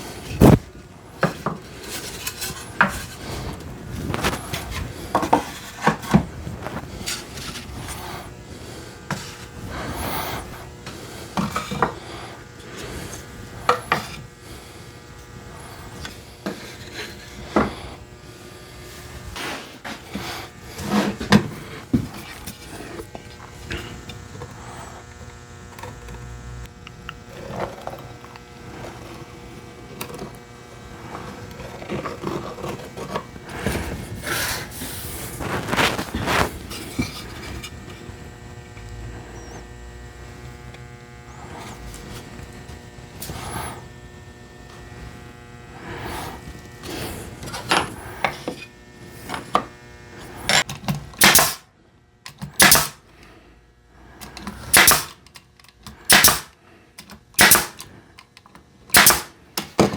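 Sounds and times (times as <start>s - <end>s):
steady hum: 0.0s - 55.2s
knocks clatter and scrapes: 0.2s - 8.3s.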